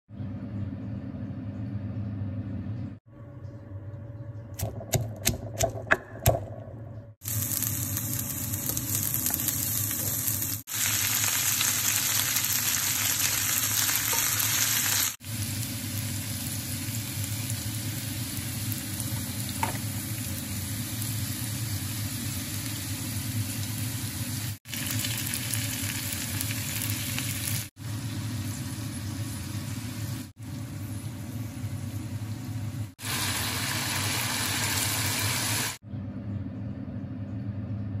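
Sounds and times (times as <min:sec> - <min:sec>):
low hum: 0:00.1 - 0:10.6, 0:35.8 - 0:38.0
food sizzling in hot oil: 0:07.2 - 0:35.8.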